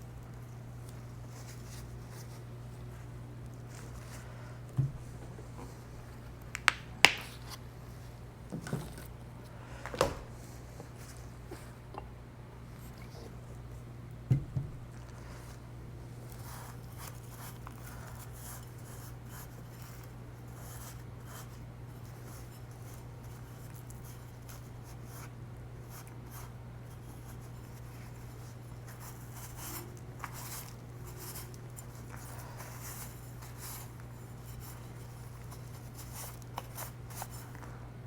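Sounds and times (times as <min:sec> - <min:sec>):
rubbing and scratching: 0:16.2 - 0:37.7.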